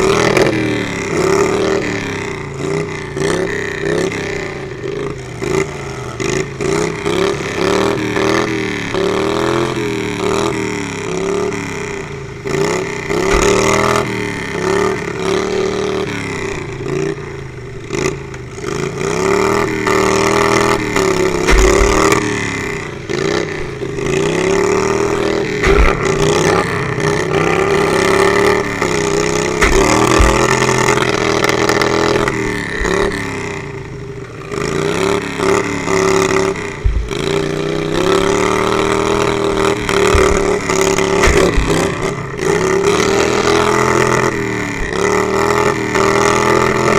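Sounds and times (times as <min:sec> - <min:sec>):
lawnmower engines revving: 0:00.0 - 0:46.9
short low thumps: 0:21.5 - 0:22.3, 0:25.6 - 0:28.9, 0:29.6 - 0:31.2, 0:36.8 - 0:37.5.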